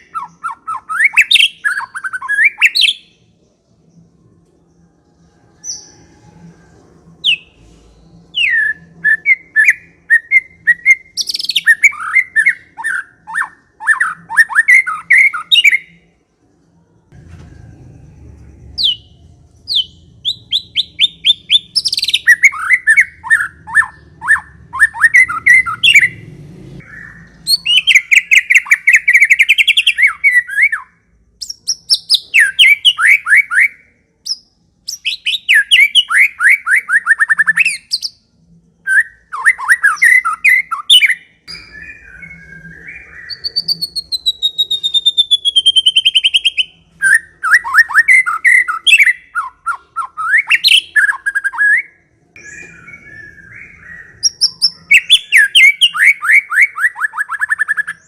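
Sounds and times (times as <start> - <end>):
bird chattering song: 0.0 - 3.4, 18.4 - 26.2, 26.8 - 38.3, 38.9 - 58.0.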